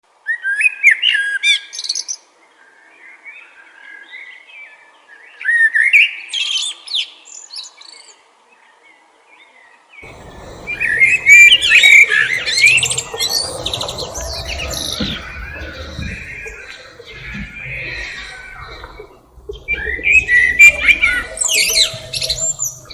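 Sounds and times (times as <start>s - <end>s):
low rumbling noise: 10.0s - 22.9s
thrush singing whistled notes: 10.0s - 22.9s.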